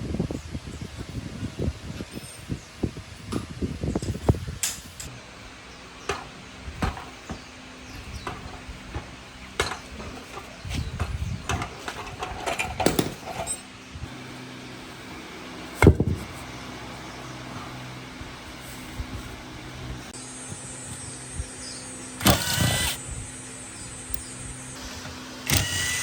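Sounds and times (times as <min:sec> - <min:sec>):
tools and metal parts knocking: 0:08.2 - 0:13.7.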